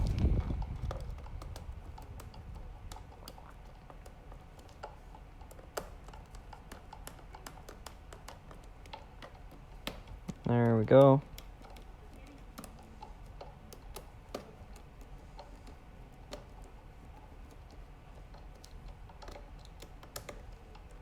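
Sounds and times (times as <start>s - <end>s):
screwdriver clicks and ticks: 0.0s - 21.0s.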